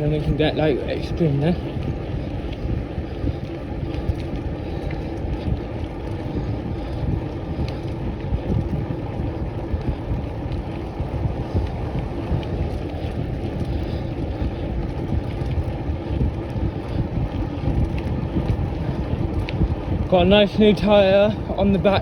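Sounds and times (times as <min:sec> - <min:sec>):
bike tyres on wet tarmac: 0:00.0 - 0:22.0
wind buffeting microphone: 0:00.0 - 0:22.0.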